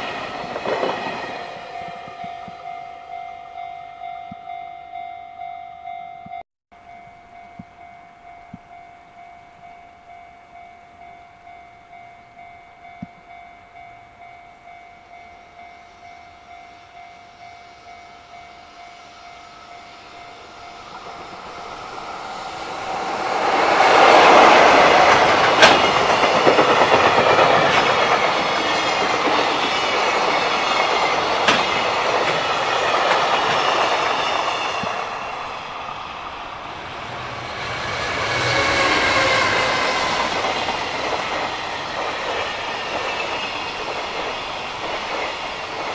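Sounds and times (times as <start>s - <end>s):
freight train rushing past: 0.0s - 4.6s, 12.4s - 45.9s
level-crossing bell ringing: 0.0s - 38.2s
wagons clattering over rail joints: 24.1s - 35.0s.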